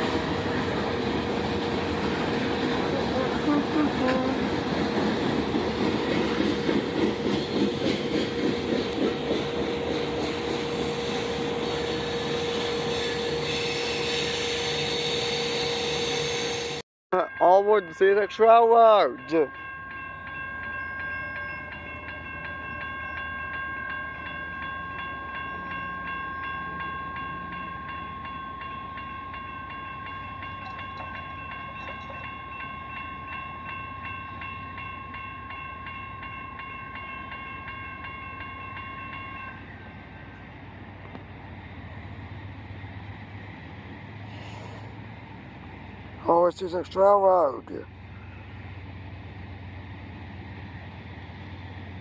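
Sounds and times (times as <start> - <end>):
crossing bell ringing: 0.0 - 40.5
passing train rumble: 0.0 - 52.0.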